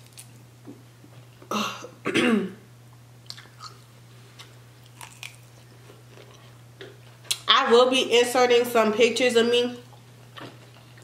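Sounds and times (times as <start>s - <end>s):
person chewing: 3.2s - 7.4s.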